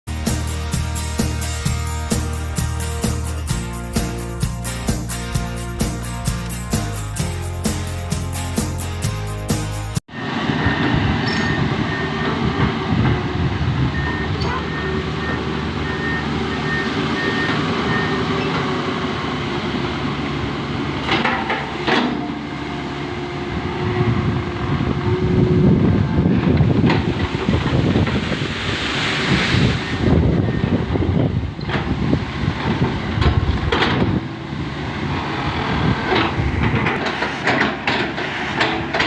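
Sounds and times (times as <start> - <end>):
intro music: 0.1 - 10.0
diesel engine running: 0.1 - 39.0
metal clatter and clanks: 21.0 - 22.3, 32.6 - 34.2, 36.1 - 39.0.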